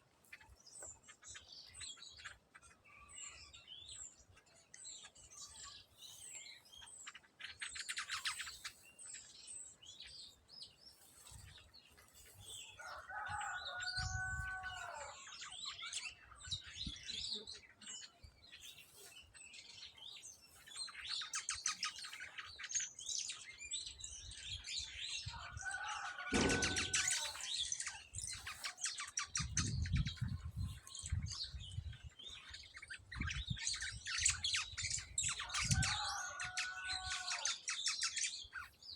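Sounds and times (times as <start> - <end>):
small birds chirping: 0.0 - 38.9
low thumps: 26.3 - 27.2.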